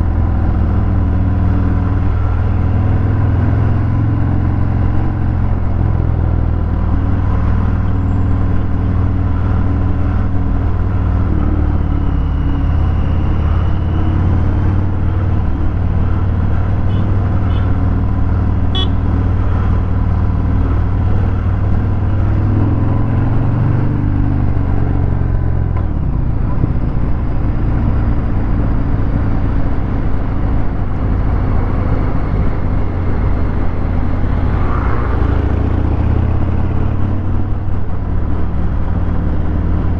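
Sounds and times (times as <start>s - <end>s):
motorcycle engine rumble: 0.0s - 39.9s.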